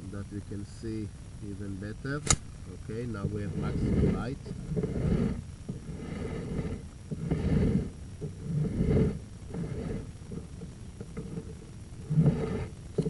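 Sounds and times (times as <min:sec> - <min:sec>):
camera cable scraping in pipe: 0:02.8 - 0:13.0.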